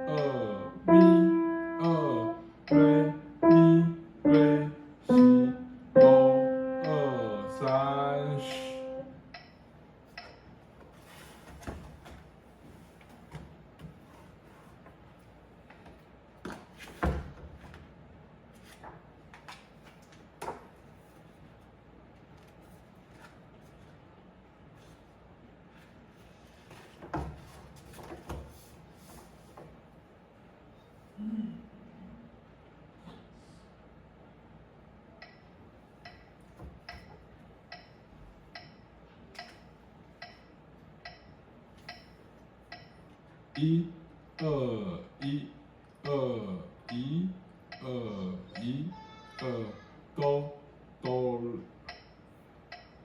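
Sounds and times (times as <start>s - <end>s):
faint metronome ticking: 0.0s - 9.6s, 35.2s - 36.3s, 37.7s - 38.8s, 40.2s - 41.3s, 41.9s - 43.8s, 46.8s - 47.9s, 51.9s - 53.0s.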